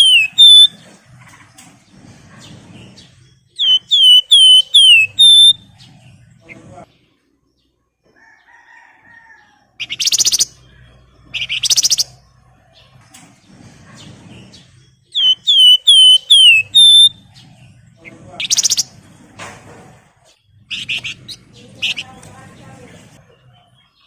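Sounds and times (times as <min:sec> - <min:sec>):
bird chattering trills: 0:00.0 - 0:00.8, 0:03.5 - 0:06.1, 0:09.8 - 0:12.3, 0:15.1 - 0:18.9, 0:20.6 - 0:22.3
bird whistles sliding down: 0:00.0 - 0:00.8, 0:03.6 - 0:05.6, 0:15.2 - 0:17.1.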